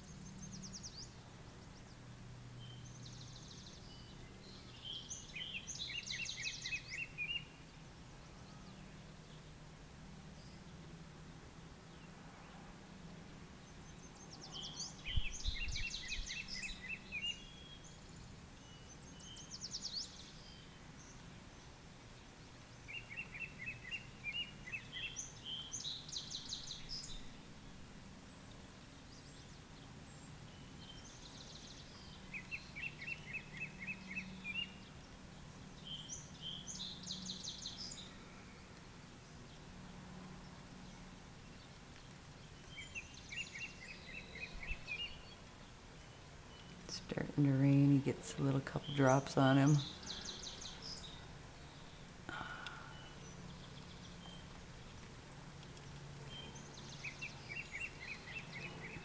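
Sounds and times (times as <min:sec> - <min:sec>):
songbird trilling: 0:14.2 - 0:17.9, 0:46.0 - 0:51.2.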